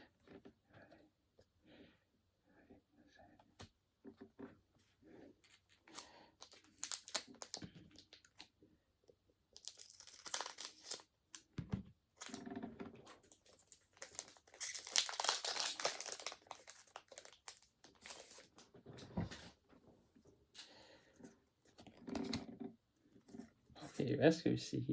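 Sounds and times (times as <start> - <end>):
foil wrapper crinkling and tearing: 5.8 - 8.4, 9.5 - 11.4, 12.2 - 12.4, 13.3 - 18.6.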